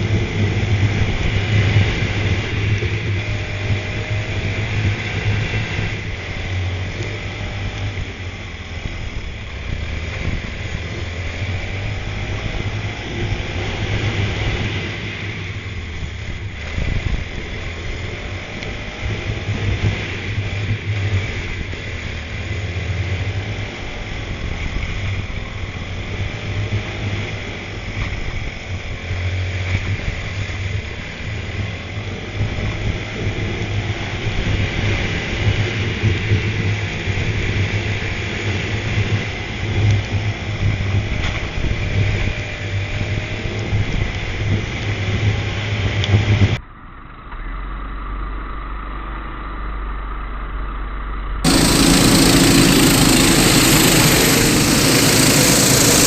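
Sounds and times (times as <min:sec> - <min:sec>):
go-kart engine running: 0:00.0 - 0:50.5, 0:51.4 - 0:56.0
steady low hum: 0:51.4 - 0:56.0.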